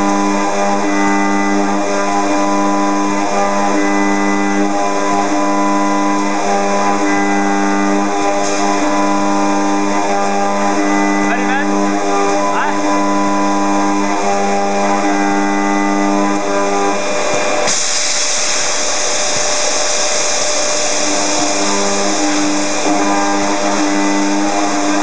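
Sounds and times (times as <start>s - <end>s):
milling spindle whine: 0.0s - 25.0s
high hiss of cutting metal: 17.6s - 24.8s.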